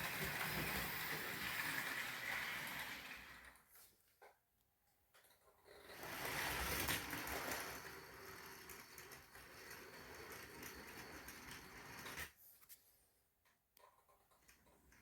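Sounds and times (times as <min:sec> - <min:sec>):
model train whirring rattle: 0:00.0 - 0:03.6, 0:05.8 - 0:12.3.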